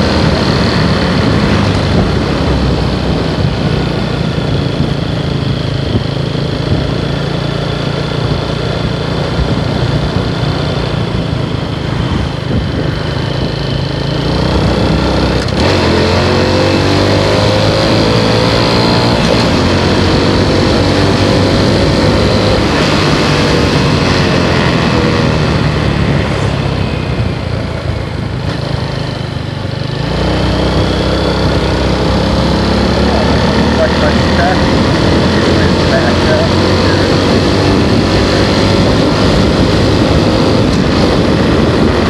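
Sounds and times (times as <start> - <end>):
motorcycle engine running: 0.0 - 42.0
wind noise: 0.0 - 42.0.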